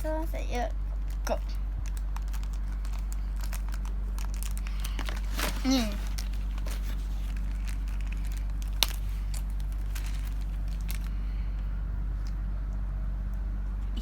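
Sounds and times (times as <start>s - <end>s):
steady low hum: 0.0s - 14.0s
packaging clicks and rustles: 0.9s - 11.2s.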